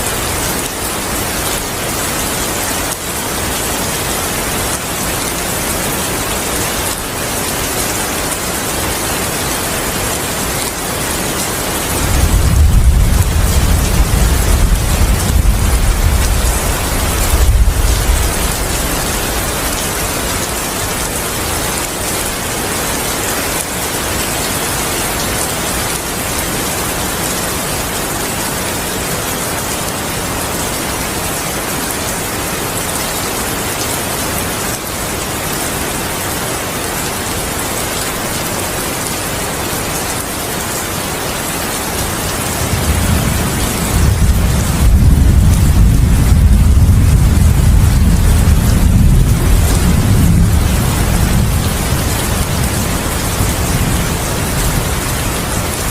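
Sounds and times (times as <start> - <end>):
heavy rain: 0.0 - 55.9
thunder rumbling: 11.9 - 20.0, 42.6 - 55.9.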